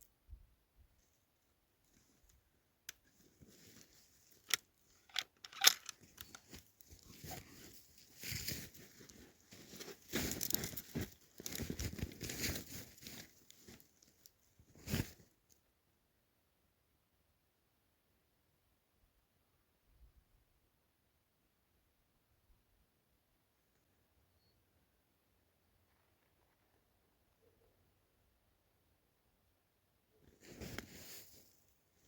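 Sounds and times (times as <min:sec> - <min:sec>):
rustling and crunching handling: 0:03.0 - 0:15.3, 0:30.2 - 0:31.7
sharp clicks: 0:04.5 - 0:06.4.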